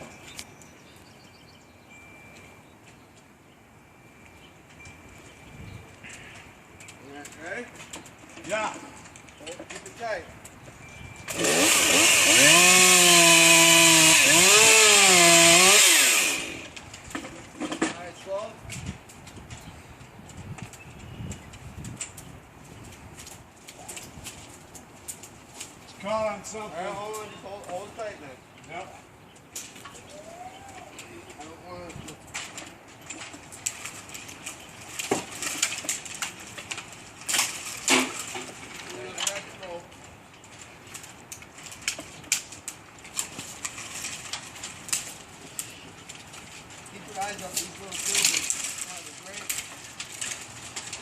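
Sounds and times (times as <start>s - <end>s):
branches crackling and snapping: 4.2s - 51.0s
chainsaw revving: 11.3s - 16.8s
limb scraping through branches: 40.4s - 51.0s.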